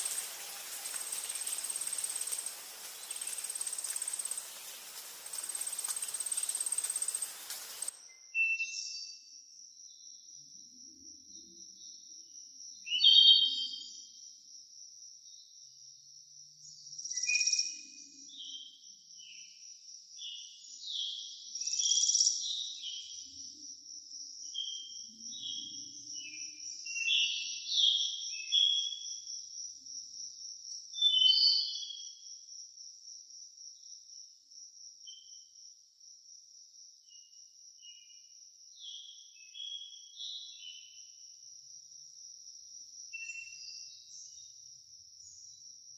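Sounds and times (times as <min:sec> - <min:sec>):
birds chirping: 0:00.0 - 0:07.9
high-pitched insect trill: 0:00.0 - 0:08.3, 0:09.1 - 0:45.9.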